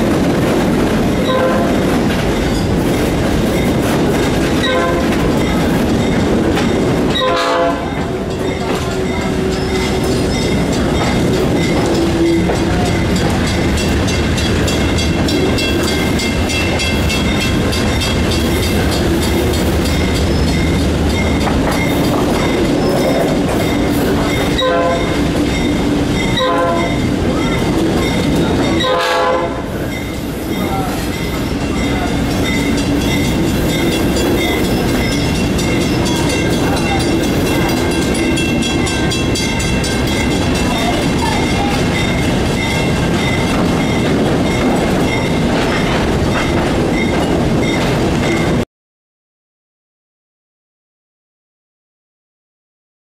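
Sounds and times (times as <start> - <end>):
train rumbling: 0.0 - 48.6
locomotive horn: 1.2 - 1.9, 4.6 - 5.2, 7.1 - 8.3, 24.5 - 25.4, 26.3 - 27.2, 28.8 - 29.8.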